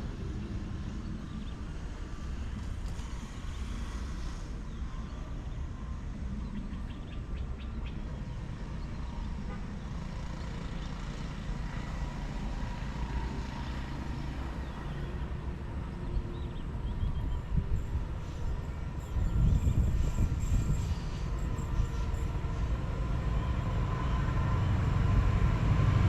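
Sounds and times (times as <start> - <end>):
diesel train rumbling: 11.6 - 26.0.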